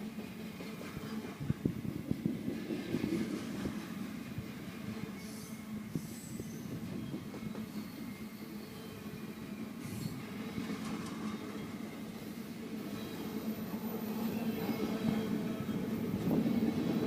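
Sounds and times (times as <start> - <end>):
freight train rumbling past: 0.0 - 17.0
high wheel squeals: 5.0 - 17.0.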